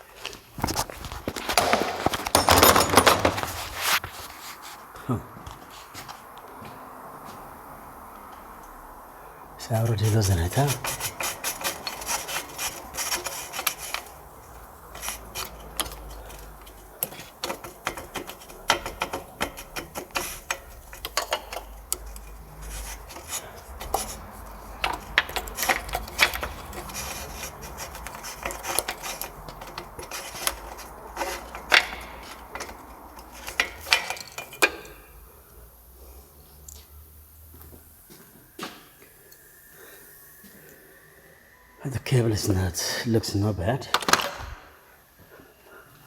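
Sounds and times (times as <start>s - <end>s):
hand tools clicking and tapping: 0.2s - 4.2s, 9.8s - 37.0s, 43.9s - 44.6s
metal parts handled: 0.6s - 4.3s, 10.0s - 35.3s.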